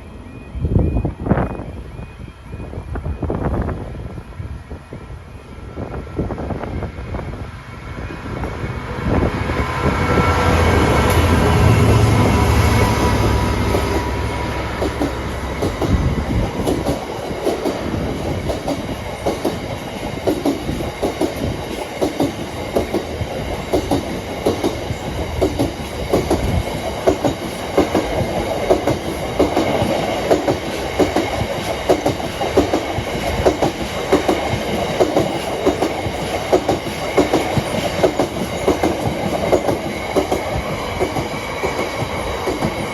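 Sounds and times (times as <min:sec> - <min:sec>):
diesel locomotive engine rumble: 0:00.0 - 0:42.9
wagon wheels clacking on track: 0:23.7 - 0:42.9.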